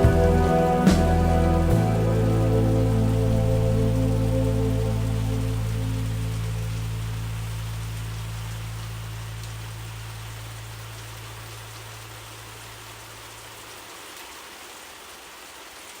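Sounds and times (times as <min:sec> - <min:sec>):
low held musical note: 0:00.0 - 0:10.6
rain hiss: 0:00.0 - 0:16.0.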